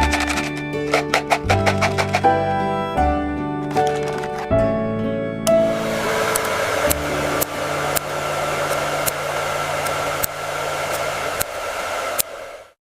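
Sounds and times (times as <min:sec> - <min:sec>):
hair dryer blowing: 0:05.5 - 0:12.8.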